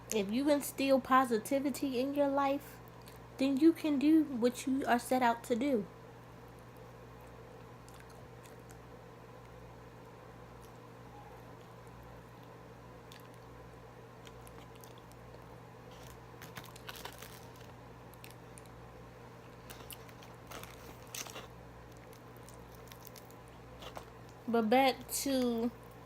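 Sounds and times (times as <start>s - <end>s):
faint steady hum: 0.0s - 26.0s
crunchy crackles: 6.4s - 26.0s
person chewing crunchy food: 6.5s - 9.6s, 11.5s - 13.6s, 14.2s - 18.8s, 19.4s - 24.4s.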